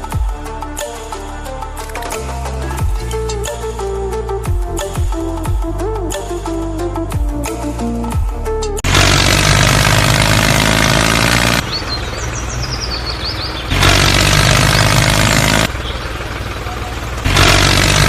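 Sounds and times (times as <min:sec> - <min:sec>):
tractor engine running: 0:07.4 - 0:18.0.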